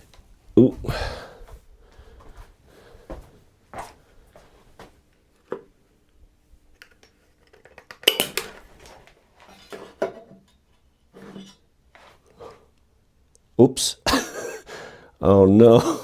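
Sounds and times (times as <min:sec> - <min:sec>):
hard objects clinking: 0:08.0 - 0:08.6.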